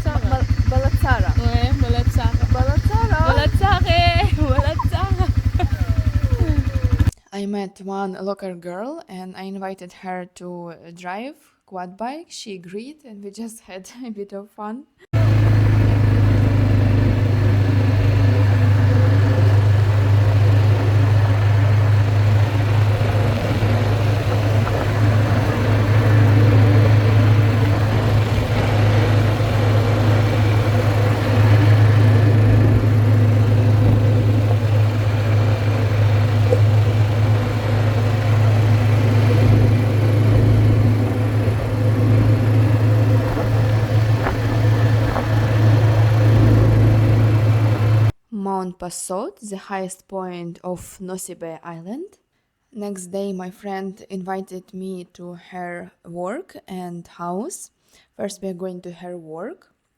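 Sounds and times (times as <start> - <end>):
quad bike engine droning: 0.0 - 7.2, 15.2 - 48.1.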